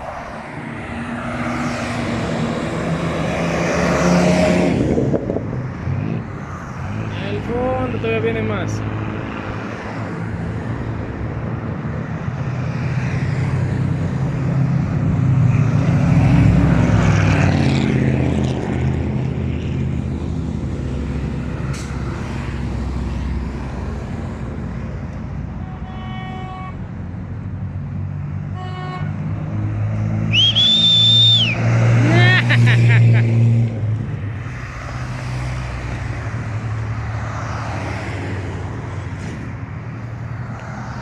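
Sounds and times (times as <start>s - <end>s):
short horn toots: 25.6s - 26.8s
pickup trucks driving past: 27.0s - 41.0s.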